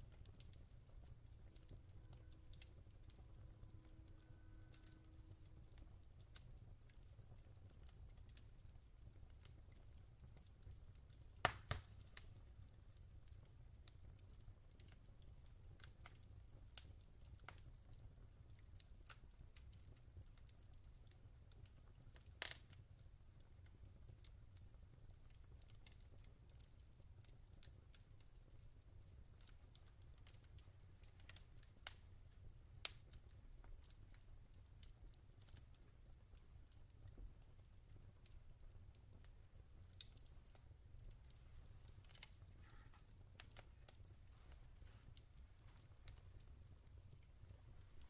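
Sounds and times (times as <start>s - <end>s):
low steady hum: 0.0s - 7.4s
log fire crackling: 0.0s - 48.0s.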